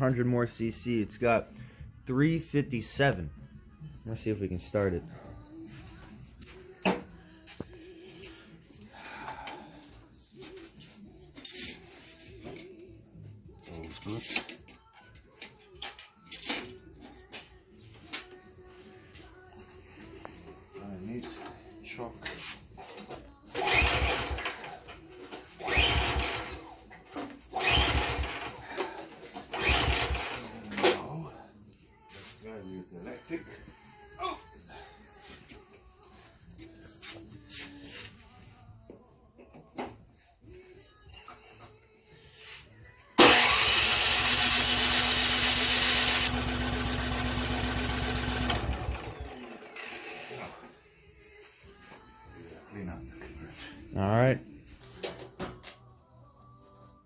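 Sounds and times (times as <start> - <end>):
pull-starter cranking engine: 23.6 - 24.8, 25.6 - 26.7, 27.6 - 30.4, 43.2 - 50.6.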